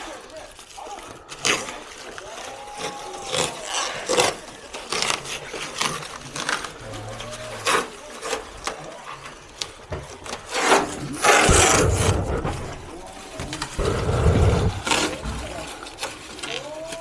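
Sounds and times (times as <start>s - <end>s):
scraping clatter: 3.3s - 17.0s
plastic panels knocking and scraping: 8.6s - 16.5s.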